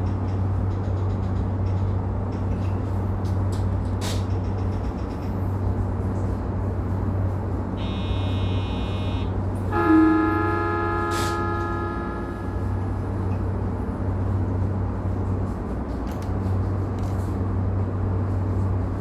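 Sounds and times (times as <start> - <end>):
electric train humming: 6.6 - 15.9
high buzzer tone: 7.8 - 13.0
train horn: 7.8 - 13.4.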